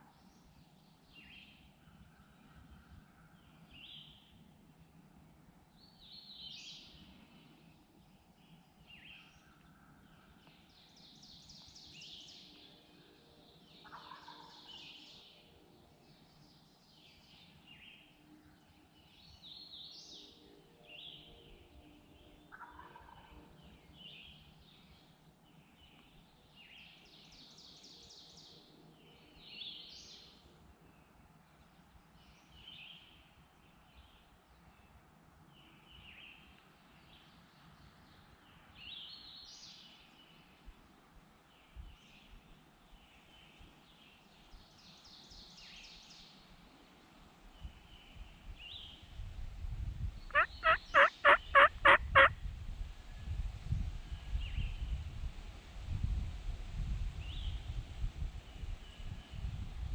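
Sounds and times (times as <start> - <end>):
songbirds chirping and trilling: 0.0 - 55.3
distant turkey gobbling: 50.3 - 52.3.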